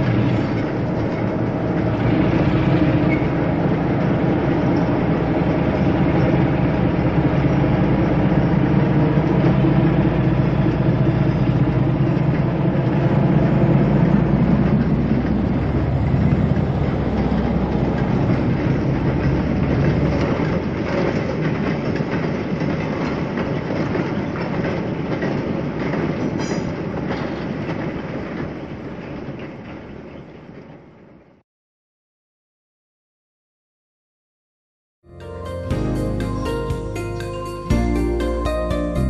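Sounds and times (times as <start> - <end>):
train wheels clattering: 0.0 - 31.0
heavy train engine drone: 0.0 - 31.4, 35.1 - 39.0.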